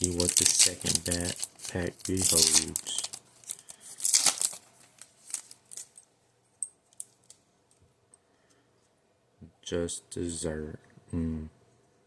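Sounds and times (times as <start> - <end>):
cards handled crackling and clicking: 0.0 - 6.0
foil wrapper tearing and crinkling: 0.0 - 6.0.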